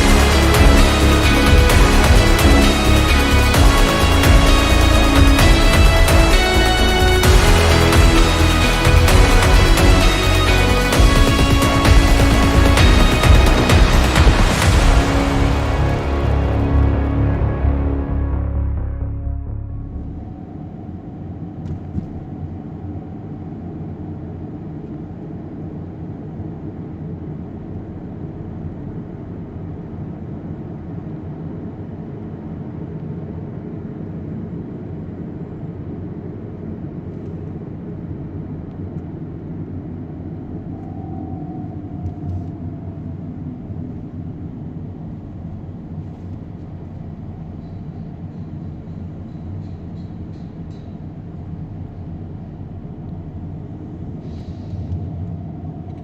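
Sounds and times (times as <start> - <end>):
low rumble of vehicle traffic: 0.0 - 56.0.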